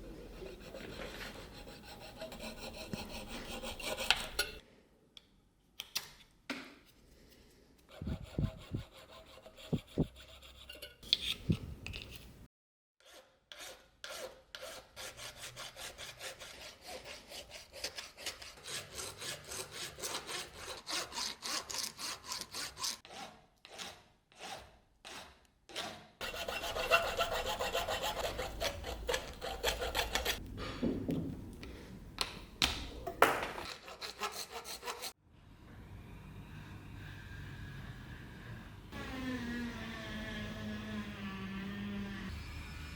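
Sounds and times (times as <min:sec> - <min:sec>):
hand tool rasping strokes: 0:00.4 - 0:04.6, 0:07.9 - 0:11.5, 0:13.0 - 0:30.4, 0:33.6 - 0:35.2.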